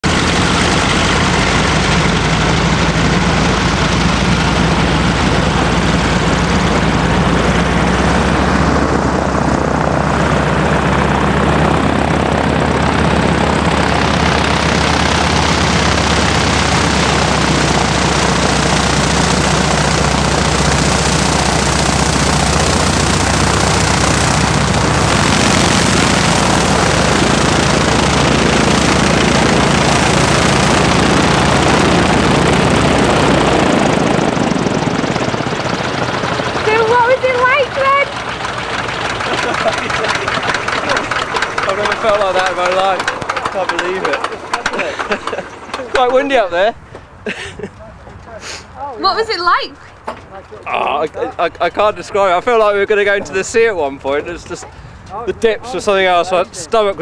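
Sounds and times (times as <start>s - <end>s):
rush of wind: 0.0s - 39.4s
propeller engine running: 0.0s - 57.0s.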